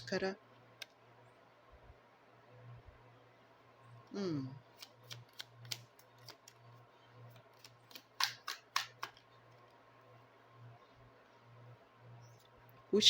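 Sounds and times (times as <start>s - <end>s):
faint low hum: 0.0s - 13.0s
cards being shuffled: 4.7s - 6.7s, 7.3s - 9.8s.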